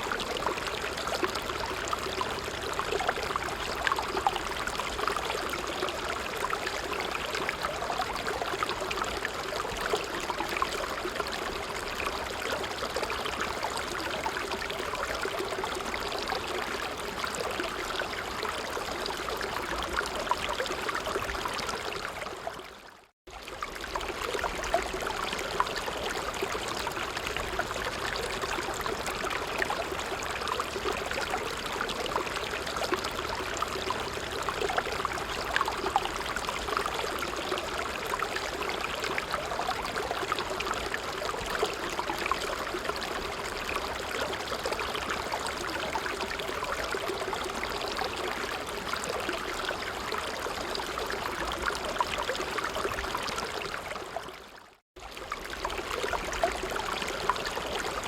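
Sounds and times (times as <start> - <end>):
creek water flowing: 0.0 - 58.0.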